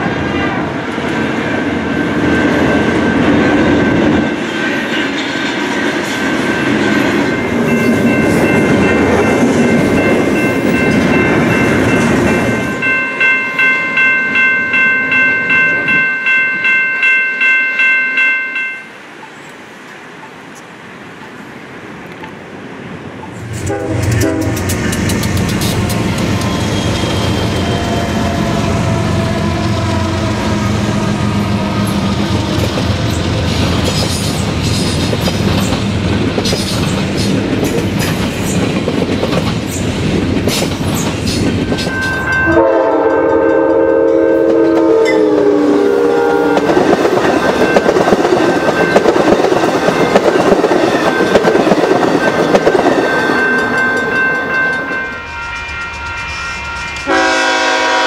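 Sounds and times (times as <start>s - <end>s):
freight train rumbling past: 0.0s - 58.0s
passenger train rushing by: 0.0s - 58.0s
locomotive air horn: 23.6s - 24.7s, 42.4s - 46.7s, 55.4s - 58.0s
wheels clicking over rail joints: 32.1s - 42.6s.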